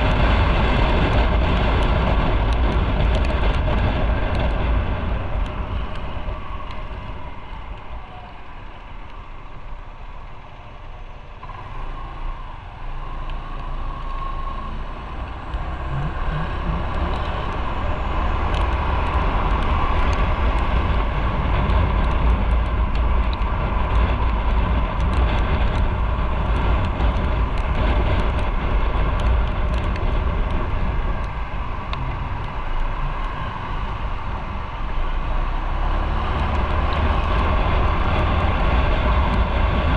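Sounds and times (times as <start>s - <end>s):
wind rushing over microphone: 0.0s - 39.9s
motorcycle engine: 11.3s - 39.9s.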